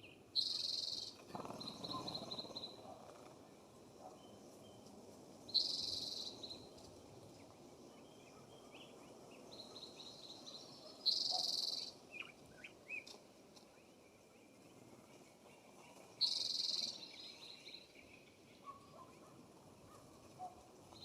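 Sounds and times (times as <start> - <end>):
faint bird chirps and whistles: 0.0 - 3.0, 5.5 - 6.7, 9.6 - 13.1, 15.8 - 19.1.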